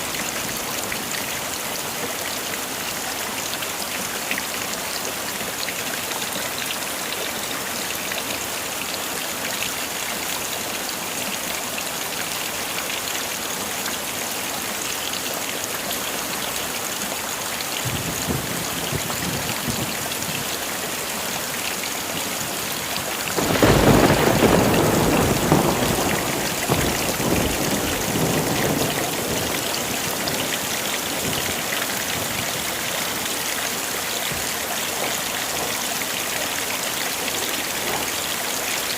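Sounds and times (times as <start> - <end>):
heavy rain falling: 0.0 - 38.9
loud thunderclap: 23.4 - 30.5
low thunder rumble: 23.4 - 31.6.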